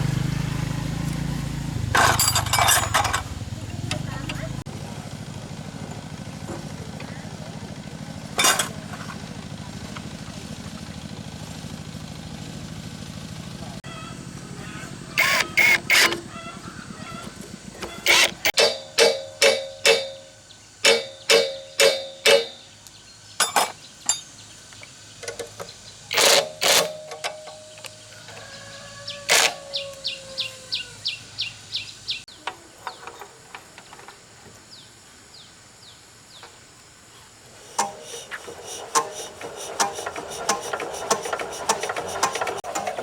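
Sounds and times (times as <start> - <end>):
metal being struck: 18.1 - 22.7.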